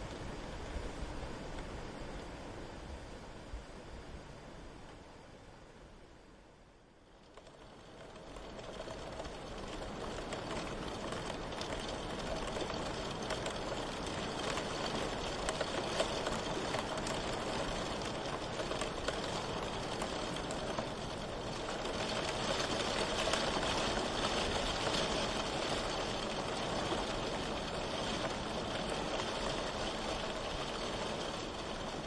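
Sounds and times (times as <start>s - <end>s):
steady rain falling: 6.6s - 32.0s.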